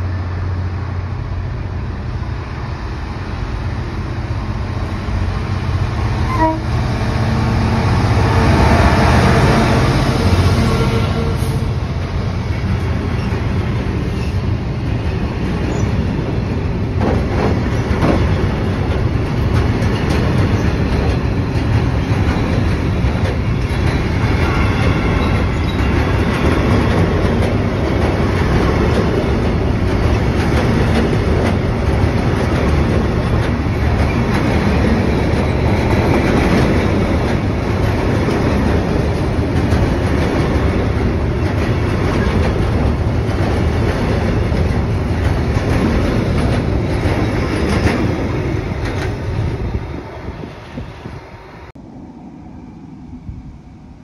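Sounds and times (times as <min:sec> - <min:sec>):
steel wheels running on rails: 0:11.7 - 0:50.8.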